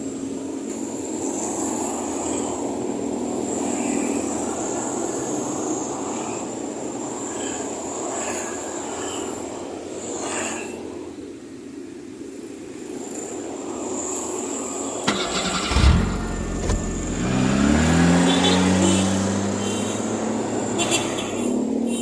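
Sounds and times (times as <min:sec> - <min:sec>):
vehicle engine starting: 0:15.0 - 0:21.3.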